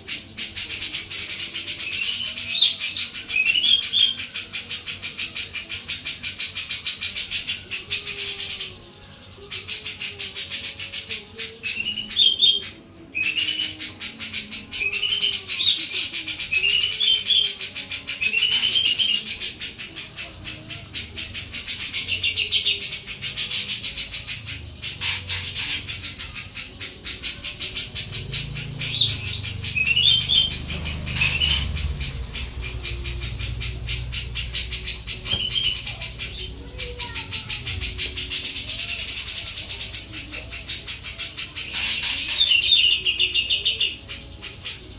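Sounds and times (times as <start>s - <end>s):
bird singing chattering song: 0.0s - 44.9s
rising whistled bird phrases: 24.4s - 40.9s.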